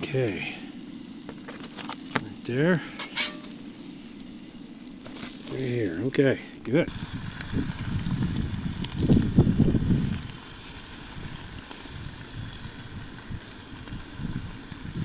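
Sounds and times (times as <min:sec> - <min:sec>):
wind buffeting microphone: 0:06.9 - 0:10.3.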